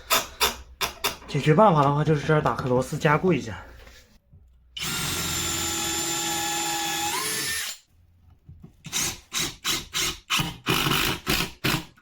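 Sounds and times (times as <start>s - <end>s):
electric drill whining: 4.8s - 7.8s.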